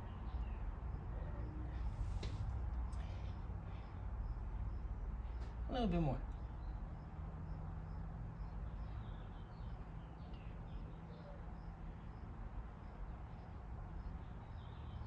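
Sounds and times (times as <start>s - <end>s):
steady low hum: 0.0s - 9.8s
small birds chirping: 2.9s - 15.0s.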